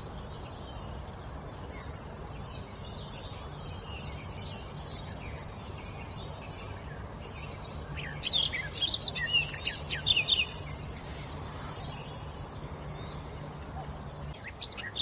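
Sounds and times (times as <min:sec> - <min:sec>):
low background noise: 0:00.0 - 0:15.0
songbird singing whistled notes: 0:00.0 - 0:15.0
faint bird calls: 0:08.0 - 0:15.0.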